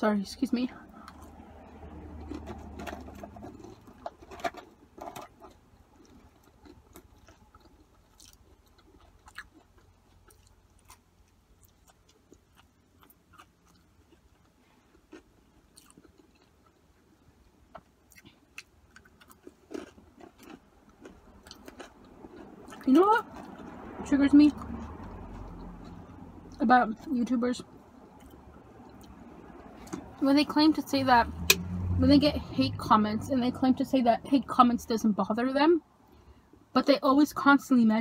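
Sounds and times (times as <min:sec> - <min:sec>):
person chewing fries: 0:00.9 - 0:24.0, 0:24.6 - 0:26.6, 0:27.7 - 0:30.2.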